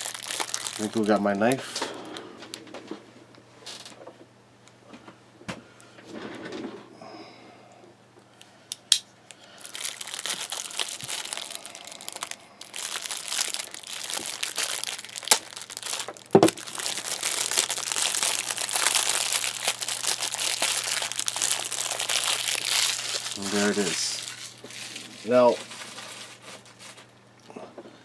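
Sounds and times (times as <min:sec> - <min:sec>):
plastic wrapping crinkling: 0:00.0 - 0:02.7, 0:09.3 - 0:27.2.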